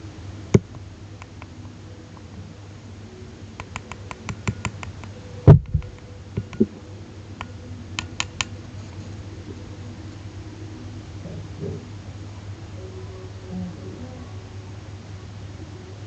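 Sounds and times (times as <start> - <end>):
hard objects clicking and tapping: 3.6 - 6.7.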